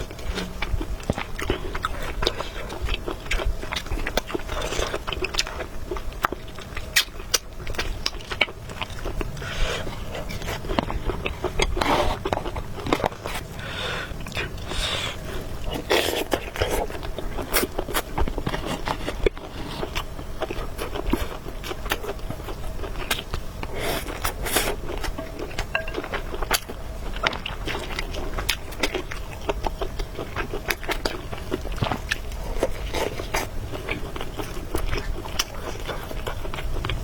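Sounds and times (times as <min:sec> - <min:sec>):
wet chewing sounds: 0:00.0 - 0:37.0
slurping noodles: 0:23.7 - 0:25.2.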